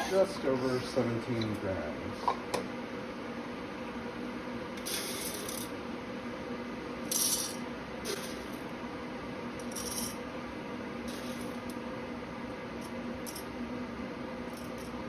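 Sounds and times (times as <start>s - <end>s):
steady low hum: 0.0s - 15.0s
coffee beans rattling into container: 9.6s - 10.2s.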